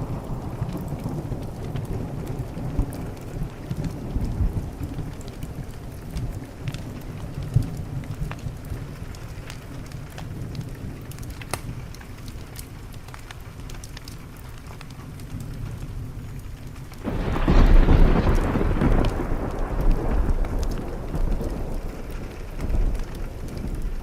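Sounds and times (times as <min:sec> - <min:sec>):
loud thunderclap rumbling: 0:00.0 - 0:08.7, 0:17.0 - 0:24.0
steady rain: 0:00.0 - 0:24.0
wood fire crackling: 0:00.0 - 0:24.0.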